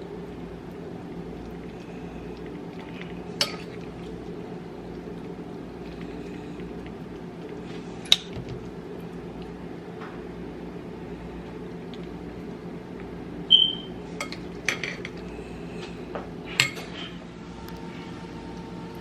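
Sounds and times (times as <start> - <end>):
low background hum: 0.0 - 19.0
utensils clinking against dishes: 13.6 - 15.2, 16.5 - 17.2.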